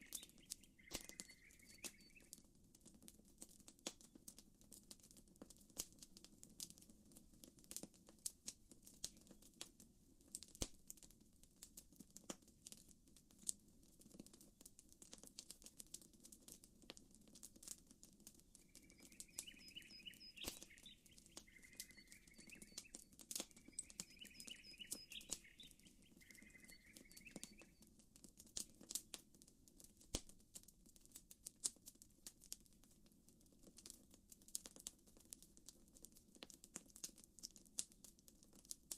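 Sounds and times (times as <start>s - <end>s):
bird chirping: 0.0s - 2.4s, 18.6s - 27.8s
campfire crackling: 0.0s - 38.9s.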